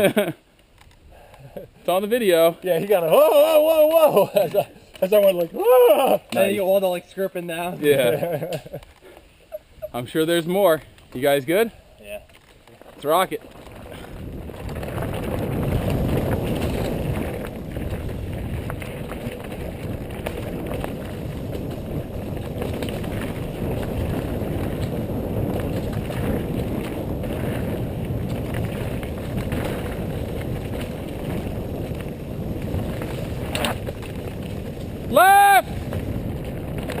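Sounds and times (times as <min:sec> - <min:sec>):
tyres rumbling on rough ground: 0:09.8 - 0:37.0
bike rattling: 0:10.0 - 0:37.0
wind buffeting microphone: 0:13.2 - 0:37.0.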